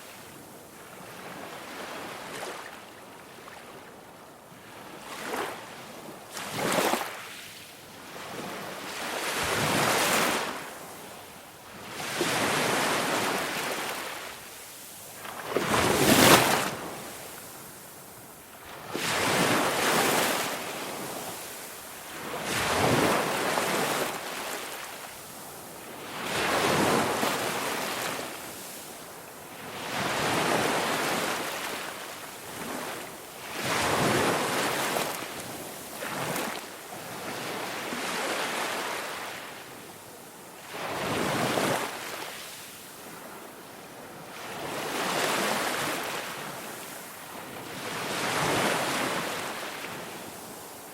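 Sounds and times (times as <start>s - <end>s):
ocean waves breaking on shore: 11.7s - 39.8s, 44.3s - 50.9s.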